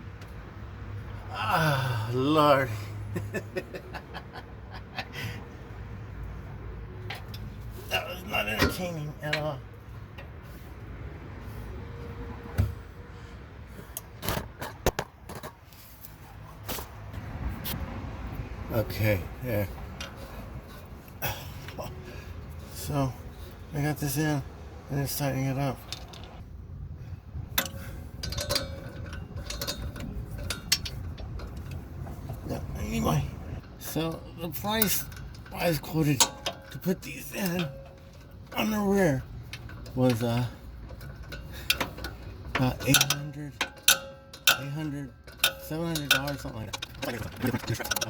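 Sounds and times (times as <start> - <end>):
wrench clicking on metal: 27.5 - 31.8, 34.7 - 47.1.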